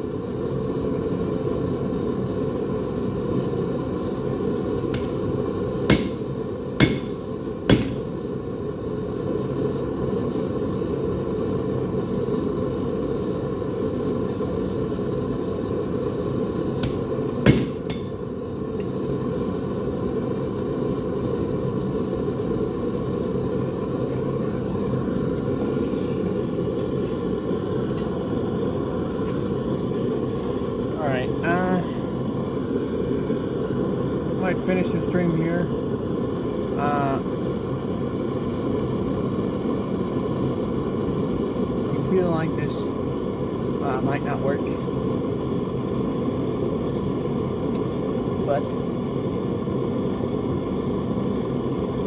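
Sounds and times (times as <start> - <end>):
steady low noise: 0.0 - 52.0
hammer striking metal: 4.9 - 5.2, 5.9 - 8.1, 16.8 - 18.2.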